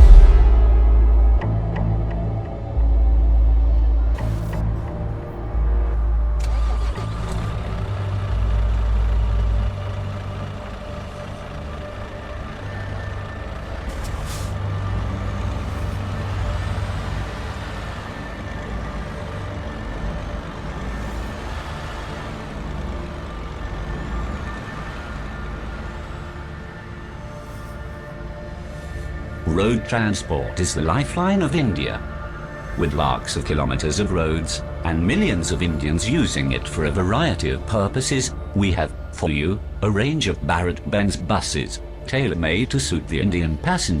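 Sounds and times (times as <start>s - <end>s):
diesel truck engine rumble: 0.0s - 44.0s
air brake hiss: 13.9s - 14.7s.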